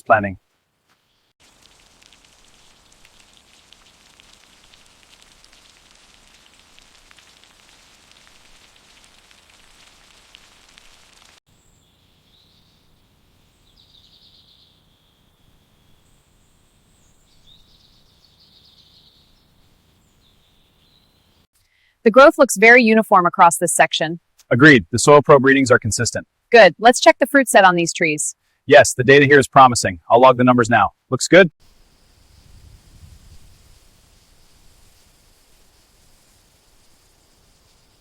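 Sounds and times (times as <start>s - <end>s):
faint crackling hiss: 0.0s - 22.3s, 30.4s - 38.0s
quiet outdoor ambience: 0.0s - 38.0s.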